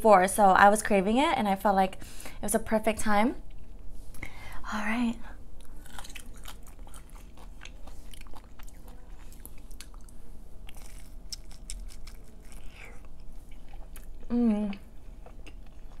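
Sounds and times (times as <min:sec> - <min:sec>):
biting and chewing pizza: 0:05.6 - 0:16.0.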